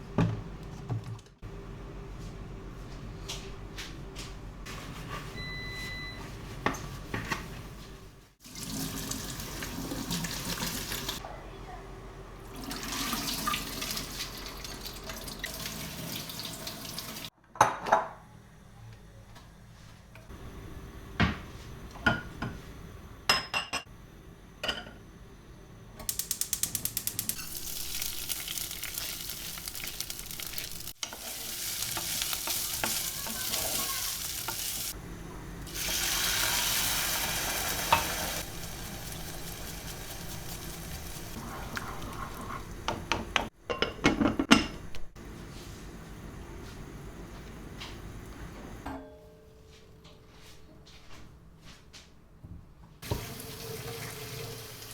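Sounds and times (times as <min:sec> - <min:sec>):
steady kitchen hiss: 0:06.3 - 0:17.3, 0:18.3 - 0:44.0, 0:53.0 - 0:54.9.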